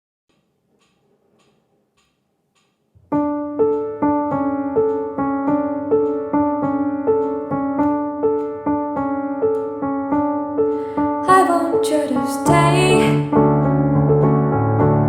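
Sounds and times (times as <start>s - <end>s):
piano chords ringing: 3.0s - 15.0s.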